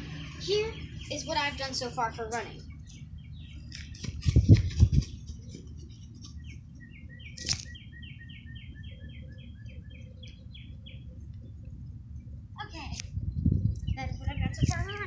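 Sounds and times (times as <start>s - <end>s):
low outdoor rumble: 0.0s - 15.0s
songbird chirping: 0.0s - 15.0s
sharp click: 7.4s - 7.8s.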